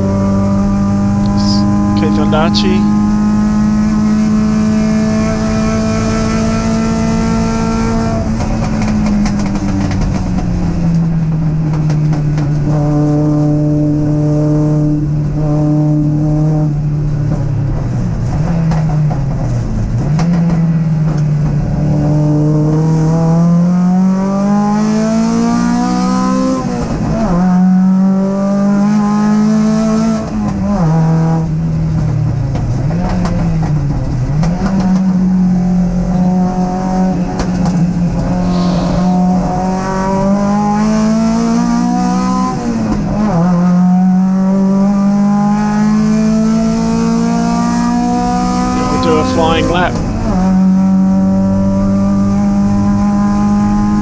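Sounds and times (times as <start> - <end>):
race car engine: 0.0 - 14.4, 34.3 - 54.0.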